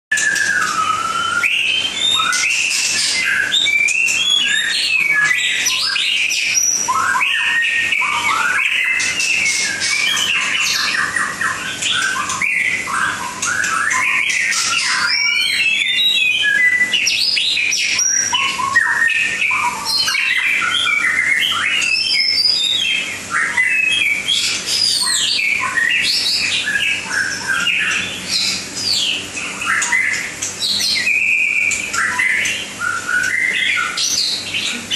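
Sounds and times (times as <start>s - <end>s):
bird singing whistled phrases: 0.1s - 34.9s.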